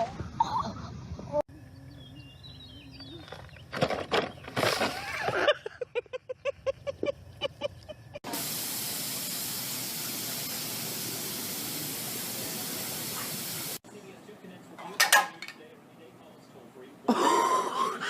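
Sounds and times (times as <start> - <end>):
loud steady hiss: 8.2 - 13.8.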